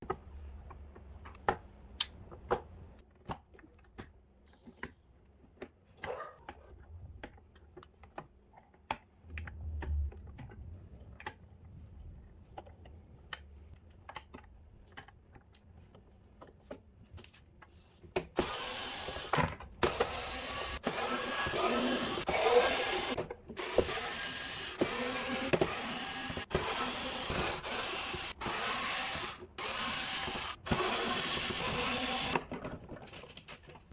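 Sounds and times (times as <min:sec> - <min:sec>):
small power tool motor whirring: 0:18.4 - 0:32.4.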